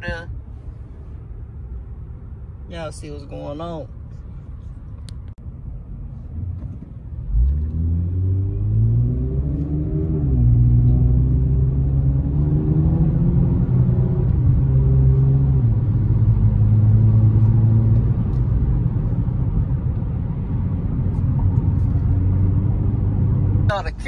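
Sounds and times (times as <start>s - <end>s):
car engine accelerating: 6.4s - 23.8s.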